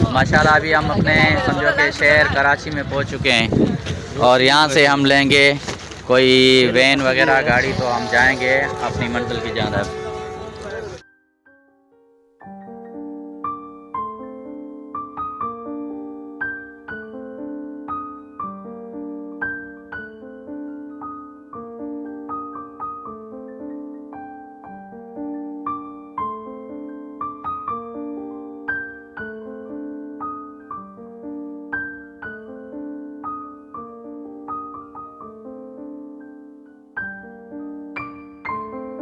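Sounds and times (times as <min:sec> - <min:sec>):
gentle piano music: 0:04.2 - 0:39.0.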